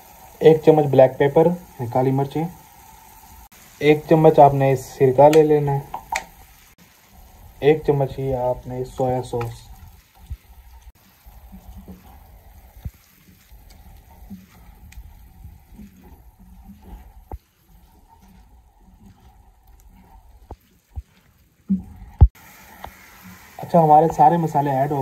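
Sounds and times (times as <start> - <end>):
chicken sizzling in a pan: 0.0 - 21.2, 22.2 - 25.0.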